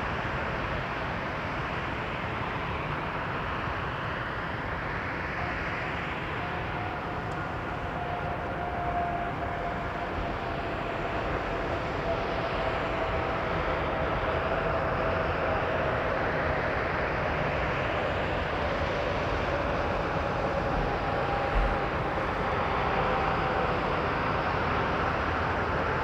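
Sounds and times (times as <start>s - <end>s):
jet engine rumble with whine: 0.0s - 26.0s.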